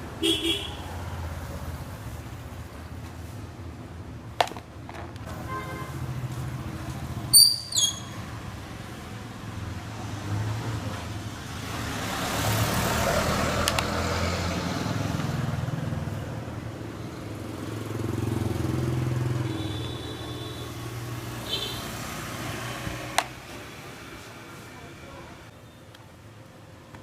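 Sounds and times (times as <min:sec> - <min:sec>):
short high squeak: 0:07.3 - 0:08.2.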